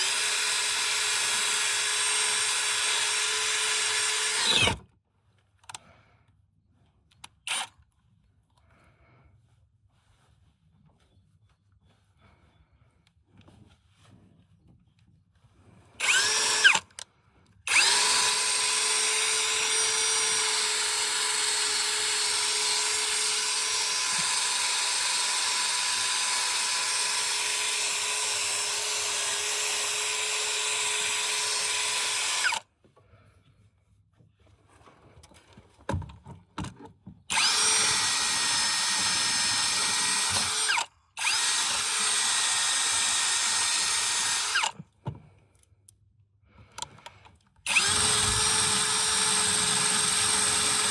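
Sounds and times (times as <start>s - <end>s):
electric power tool running: 0.0s - 4.8s, 16.0s - 16.8s, 17.7s - 32.6s, 37.3s - 44.8s, 47.7s - 50.9s.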